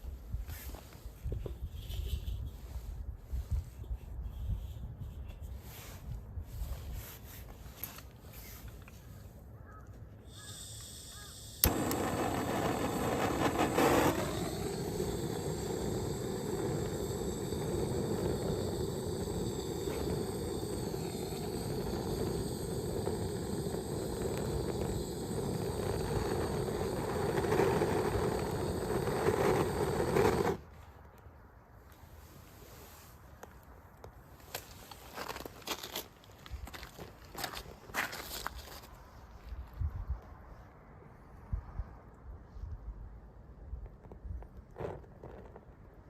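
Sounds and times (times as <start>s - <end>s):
gas torch ignition click: 10.3s - 30.6s
torch flame roaring: 10.3s - 30.7s.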